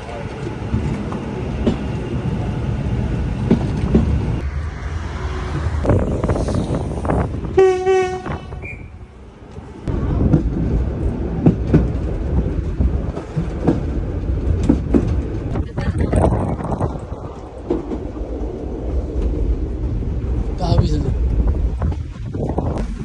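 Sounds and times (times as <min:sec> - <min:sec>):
rail joint clicks: 0:00.0 - 0:04.4, 0:05.8 - 0:15.6
tram rumbling on rails: 0:00.0 - 0:23.0
train whistle: 0:07.6 - 0:09.0.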